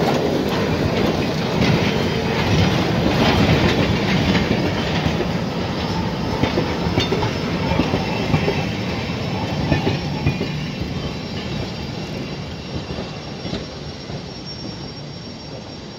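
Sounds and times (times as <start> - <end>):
train wheels clattering on rails: 0.0 - 15.8
faint wheel squeal: 5.8 - 15.9.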